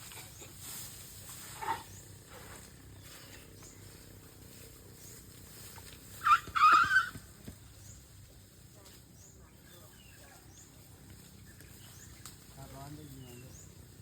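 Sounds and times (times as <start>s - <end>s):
baby elephant squealing: 6.2s - 7.2s.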